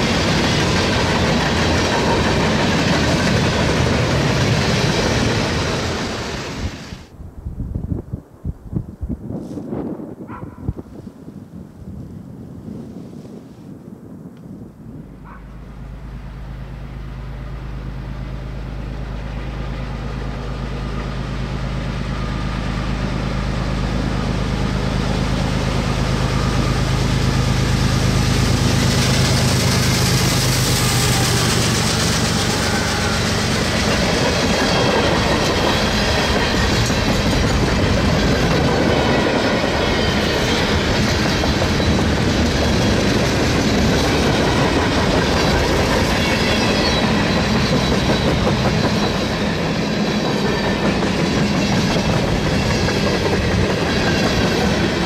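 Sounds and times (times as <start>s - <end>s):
train wheels clattering on rails: 0.0s - 6.9s, 24.1s - 55.0s
diesel locomotive engine hum: 0.0s - 9.3s, 14.0s - 55.0s.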